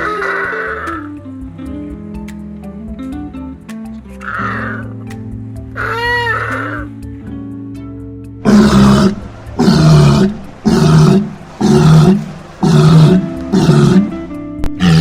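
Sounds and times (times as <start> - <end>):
loud rough animal calls: 0.0 - 1.1, 4.2 - 5.0, 5.8 - 6.9, 8.5 - 14.2, 14.8 - 15.0
background music: 0.0 - 15.0.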